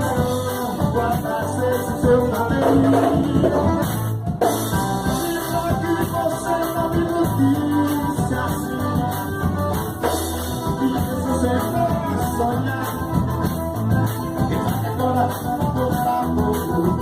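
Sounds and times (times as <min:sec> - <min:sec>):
person singing: 0:00.0 - 0:03.9, 0:04.7 - 0:17.0
live band playing: 0:00.0 - 0:17.0.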